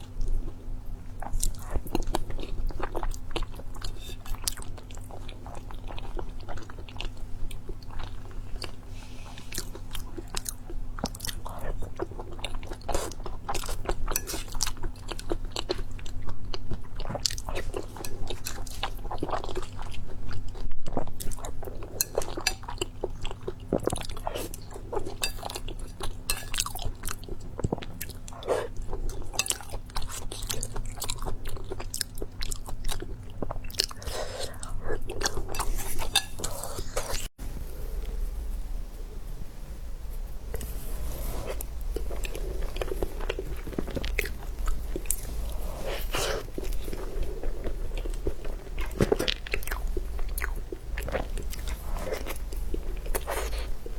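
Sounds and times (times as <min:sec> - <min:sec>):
low steady hum: 0:00.0 - 0:53.9
person chewing and biting food: 0:40.6 - 0:53.8.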